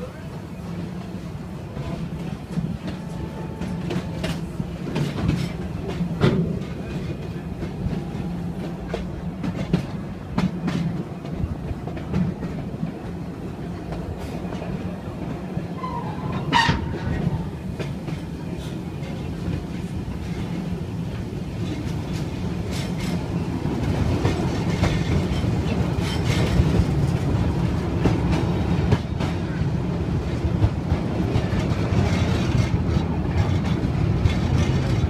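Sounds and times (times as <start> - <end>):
train cars rumbling on track: 0.0 - 35.0.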